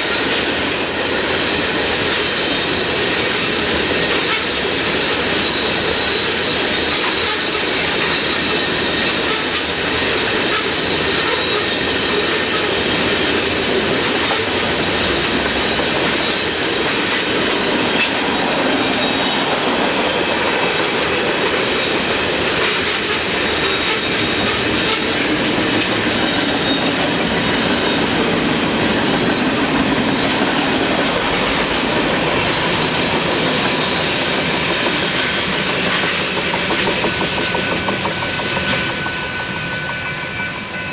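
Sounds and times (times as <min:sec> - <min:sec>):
freight train wheels rumbling: 0:00.0 - 0:40.9
high wheel squeal: 0:00.7 - 0:13.4, 0:14.3 - 0:17.1, 0:17.8 - 0:35.8.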